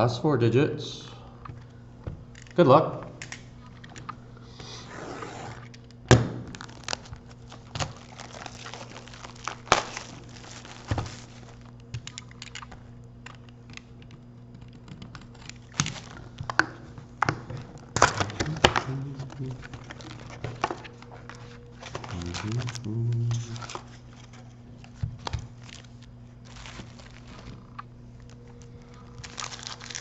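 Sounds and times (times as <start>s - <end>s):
steady low hum: 0.0s - 30.0s
foil wrappers crinkling and tearing: 5.5s - 12.8s, 15.0s - 30.0s.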